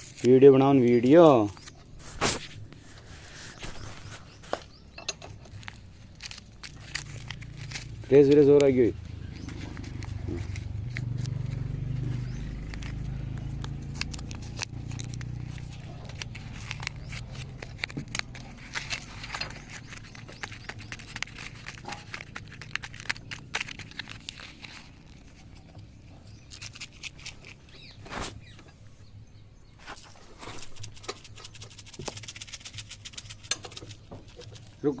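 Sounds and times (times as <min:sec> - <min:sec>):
sharp clicks and knocks: 0:04.5 - 0:05.8, 0:33.4 - 0:34.6.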